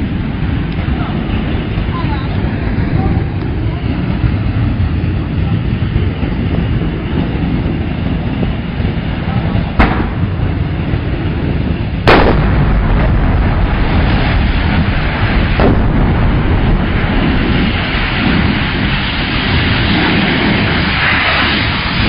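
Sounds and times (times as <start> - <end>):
loud rumble: 0.0 - 22.0
explosion blast: 8.8 - 22.0
smaller bang: 9.8 - 10.6, 12.1 - 18.2.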